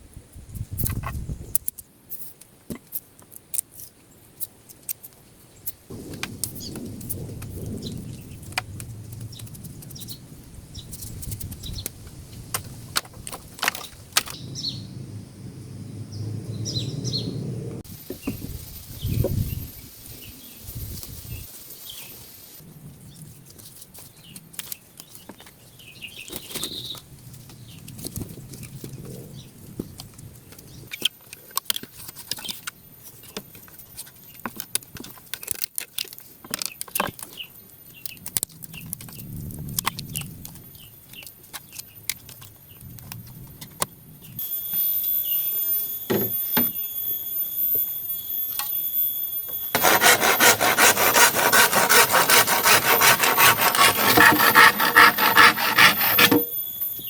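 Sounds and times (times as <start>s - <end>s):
hands handling wood and leaves: 23.2s - 28.9s, 49.8s - 56.4s
blade rasping across wood: 49.8s - 56.6s.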